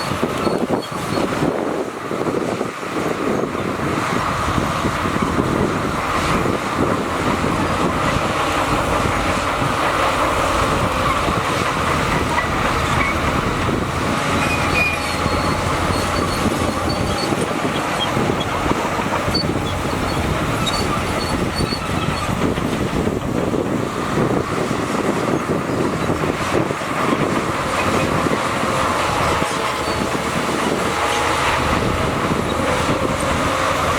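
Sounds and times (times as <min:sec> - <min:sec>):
faint high squeals: 0:00.0 - 0:01.3, 0:14.4 - 0:18.4
bulldozer diesel engine: 0:00.0 - 0:33.9
steel tracks clattering: 0:06.0 - 0:33.9.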